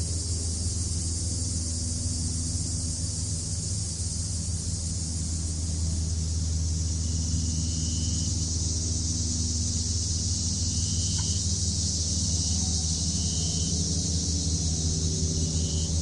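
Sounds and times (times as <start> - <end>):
crickets chirring: 0.0 - 16.0
low steady rumble: 0.0 - 16.0
faint high calls: 10.6 - 11.5.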